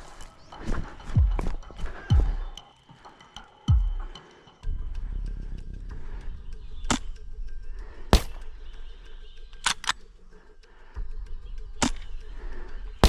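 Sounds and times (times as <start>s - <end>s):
airsoft gun cracks: 8.2s - 8.5s.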